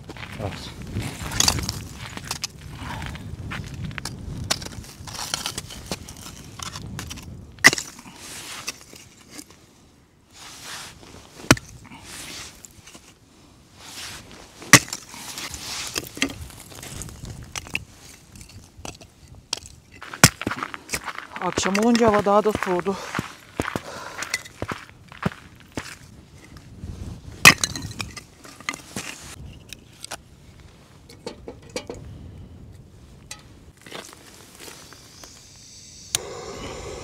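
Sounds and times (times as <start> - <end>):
footsteps crunching through snow: 20.0 - 27.2, 33.8 - 35.3.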